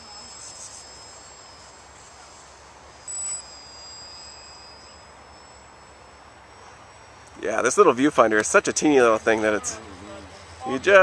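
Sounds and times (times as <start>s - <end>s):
short high beep: 0.0s - 7.2s
electric motors whining: 0.0s - 11.0s.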